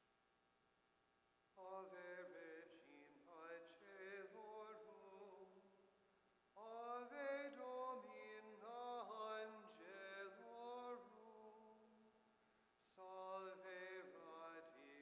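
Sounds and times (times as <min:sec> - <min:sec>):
man chanting: 0:01.6 - 0:05.6, 0:06.6 - 0:11.7, 0:12.8 - 0:15.0.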